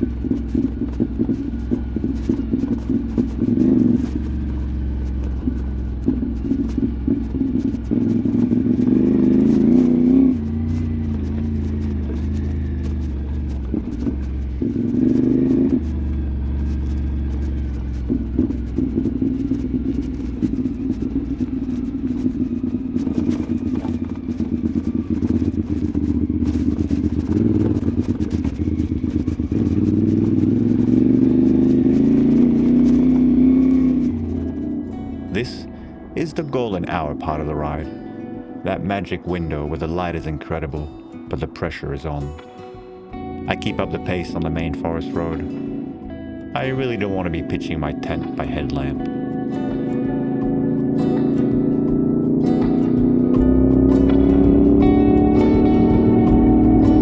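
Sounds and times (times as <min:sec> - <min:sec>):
rattle and clatter over rough ground: 0:00.0 - 0:35.4
motorcycle engine revving: 0:00.0 - 0:57.0.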